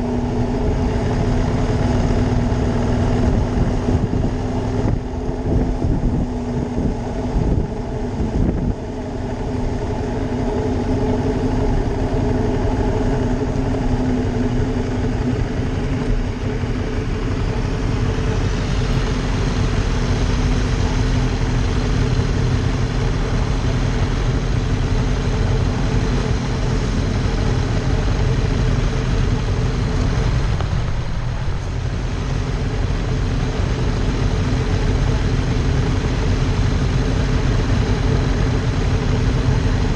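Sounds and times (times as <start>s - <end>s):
motorcycle engine running: 0.0s - 39.9s
wind noise rushing: 3.1s - 8.9s, 29.2s - 32.4s.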